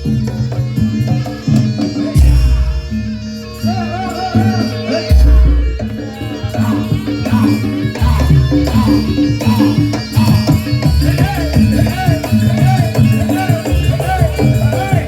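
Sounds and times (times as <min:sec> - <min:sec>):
rattling percussion: 0:00.0 - 0:15.0
rhythmic drumming: 0:00.0 - 0:15.0
wavering melody: 0:00.0 - 0:15.0
deep low strokes: 0:05.1 - 0:06.0.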